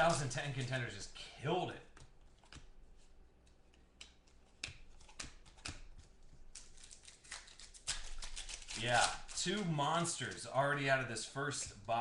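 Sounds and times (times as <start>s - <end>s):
trading cards clicking: 3.4s - 10.4s.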